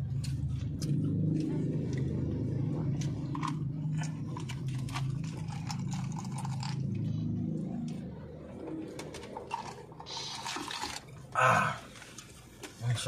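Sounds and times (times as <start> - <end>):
man chewing: 0.0 - 7.1
low wavering hum: 0.0 - 12.7.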